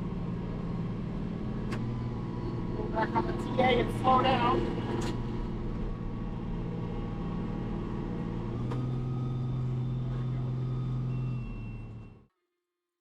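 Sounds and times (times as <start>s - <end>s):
diesel tractor engine running: 0.0s - 12.3s.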